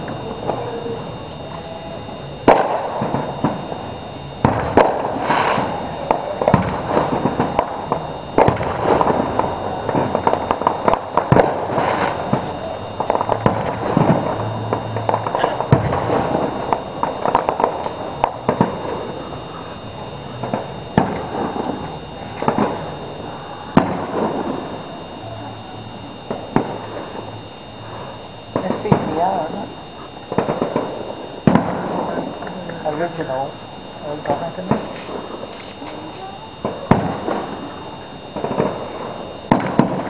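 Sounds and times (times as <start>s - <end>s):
fireworks bangs: 0.0s - 40.0s
fireworks crackling: 0.0s - 40.0s.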